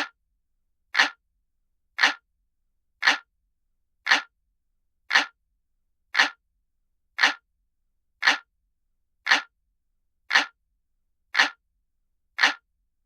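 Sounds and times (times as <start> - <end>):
clock ticking: 1.0 - 1.2, 2.0 - 2.2, 3.0 - 3.3, 4.1 - 4.3, 5.1 - 5.4, 6.2 - 6.4, 7.2 - 7.4, 8.2 - 8.5, 9.2 - 9.5, 10.3 - 10.6, 11.3 - 11.6, 12.4 - 12.6.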